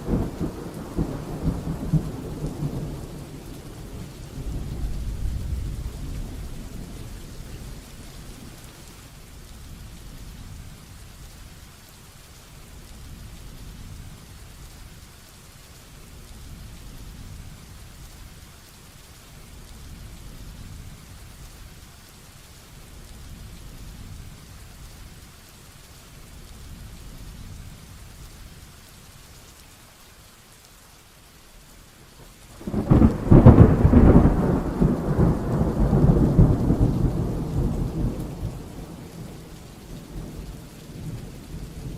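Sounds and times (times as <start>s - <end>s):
low thunder rumble: 0.0s - 11.5s, 32.5s - 41.9s
heavy rain: 0.0s - 41.9s
loud thunderclap: 32.6s - 39.3s.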